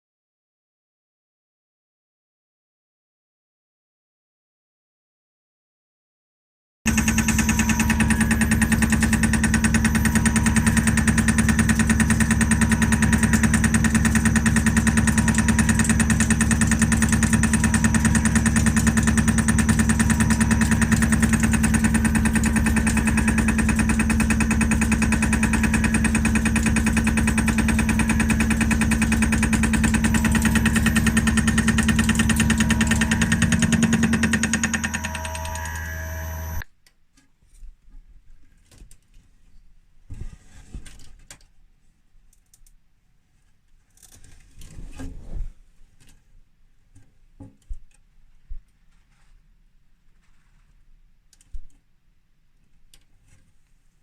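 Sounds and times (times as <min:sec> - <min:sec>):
milling machine cutting steel: 0:06.9 - 0:36.6.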